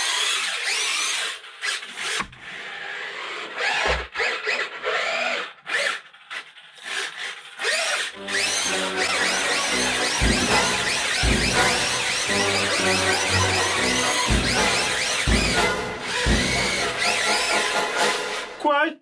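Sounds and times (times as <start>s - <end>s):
electric motor whining: 8.2s - 18.0s
music: 8.2s - 18.7s.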